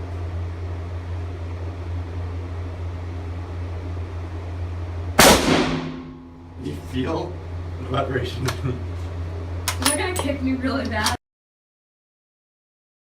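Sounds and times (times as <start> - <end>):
steady low hum: 0.0 - 11.2
rifle shot echoing: 5.2 - 6.4.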